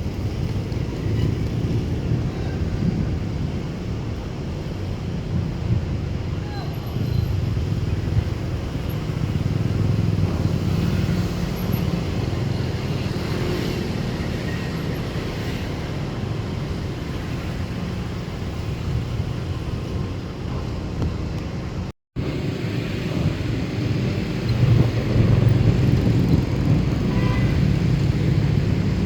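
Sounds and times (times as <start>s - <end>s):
traffic rumble: 0.0s - 29.0s.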